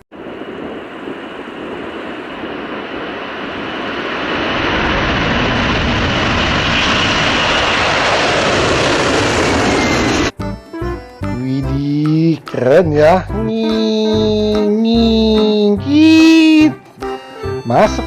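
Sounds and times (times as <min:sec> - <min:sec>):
aircraft engine rushing noise: 0:00.0 - 0:10.4.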